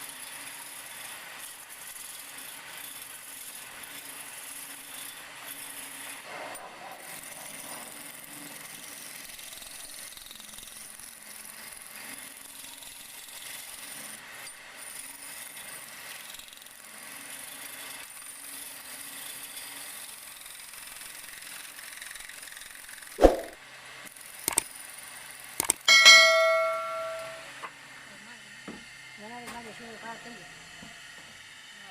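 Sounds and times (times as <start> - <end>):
sharp knock: 23.2 - 23.6, 25.9 - 27.4
clicks: 25.6 - 27.4
loud metallic clang: 25.9 - 27.5.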